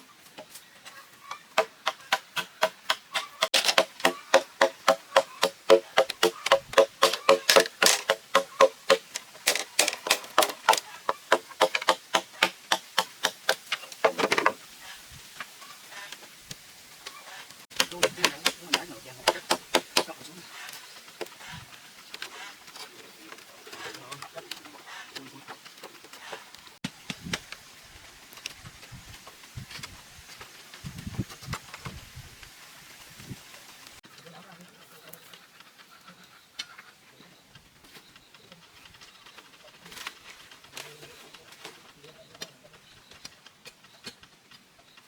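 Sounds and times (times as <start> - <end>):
rapid blows on hollow bamboo: 0.0 - 45.0
irregular clicks and taps: 1.6 - 14.6.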